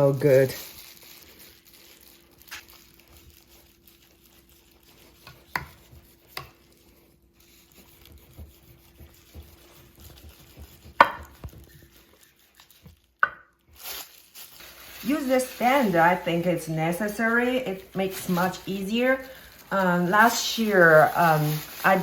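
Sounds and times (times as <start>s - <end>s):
knife slicing and scraping ham: 2.6s - 13.0s.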